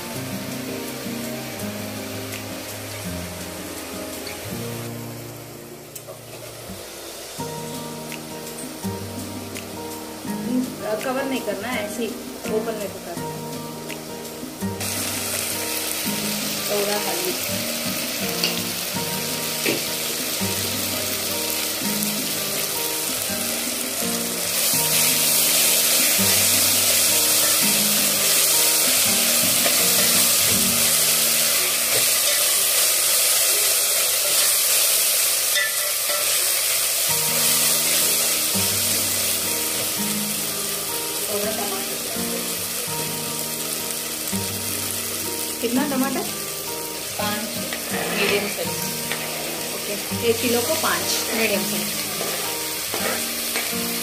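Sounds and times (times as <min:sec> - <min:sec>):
leaves and onions sizzling in oil: 0:00.0 - 0:54.0
light background music: 0:00.0 - 0:54.0.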